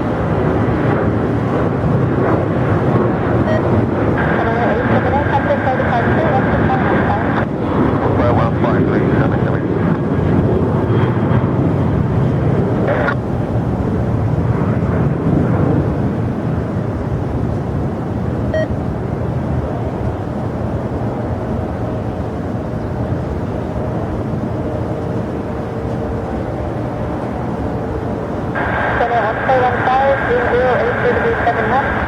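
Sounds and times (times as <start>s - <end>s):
jet airliner engine rumble: 0.0s - 32.0s.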